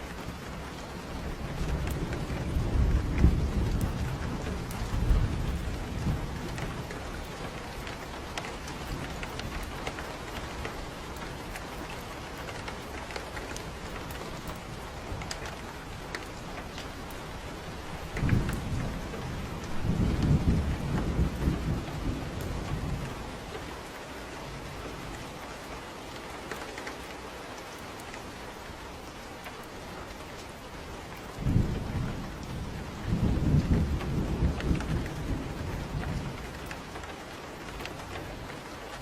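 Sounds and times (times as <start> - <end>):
thunder rumbling: 0.0 - 11.8, 12.6 - 23.8, 31.3 - 39.0
steady rain: 0.0 - 39.0.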